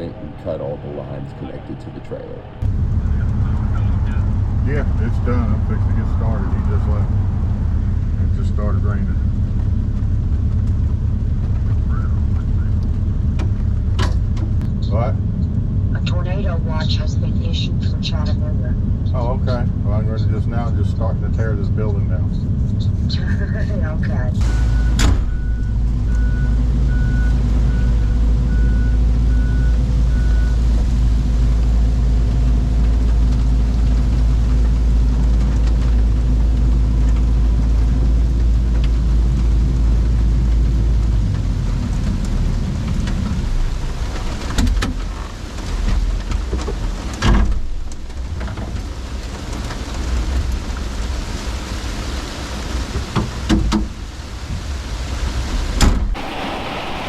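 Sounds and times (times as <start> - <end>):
heavy diesel engine running: 0.0 - 20.1, 56.2 - 57.0
rain hissing: 48.1 - 57.0.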